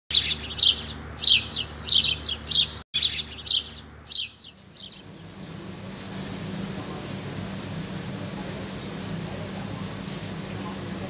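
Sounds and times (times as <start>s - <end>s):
bird chirping: 0.1s - 5.4s.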